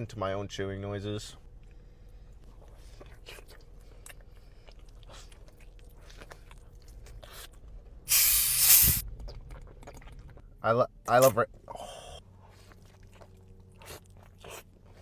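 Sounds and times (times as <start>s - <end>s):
chewing and biting food: 1.5s - 8.0s, 9.0s - 15.0s
loud hissing noise: 8.1s - 9.0s.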